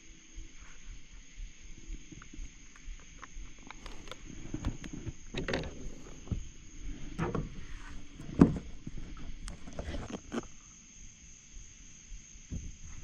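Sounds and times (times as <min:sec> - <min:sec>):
fishing gear clicks and rustles: 0:02.1 - 0:06.3.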